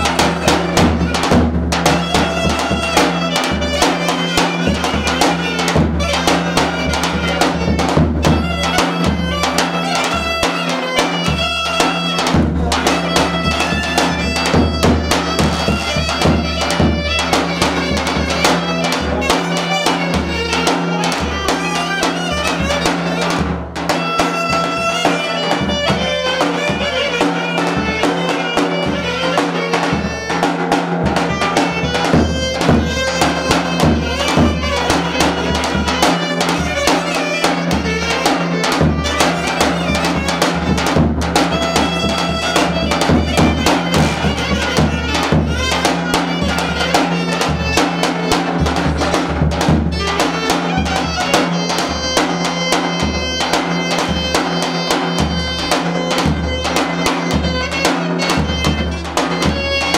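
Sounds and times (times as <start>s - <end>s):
steady drum beat: 0.0s - 59.9s
wind instrument melody: 0.0s - 59.9s.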